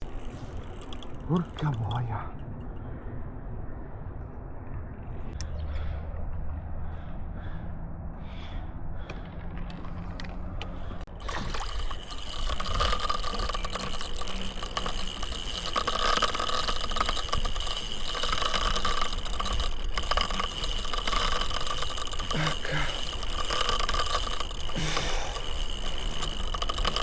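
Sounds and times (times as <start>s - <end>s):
fishing reel drag buzzing: 0.0s - 2.2s, 11.1s - 27.0s
low rumble: 2.0s - 11.3s.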